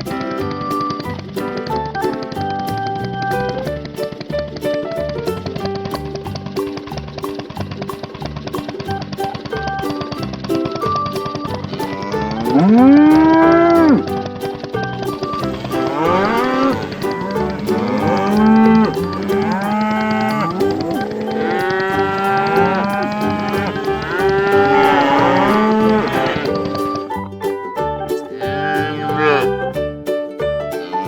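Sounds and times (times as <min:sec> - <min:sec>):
background music: 0:00.0 - 0:31.0
cattle mooing: 0:17.8 - 0:26.5, 0:28.4 - 0:29.5.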